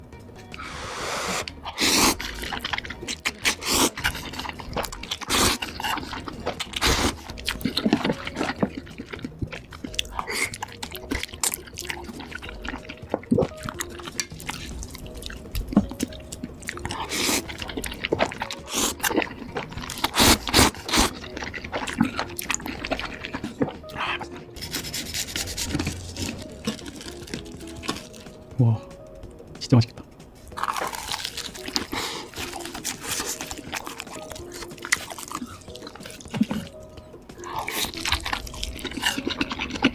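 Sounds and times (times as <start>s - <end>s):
wet mouth sounds: 0.5s - 28.2s, 37.4s - 39.9s
person chewing and crunching food: 0.5s - 28.4s, 30.4s - 39.9s.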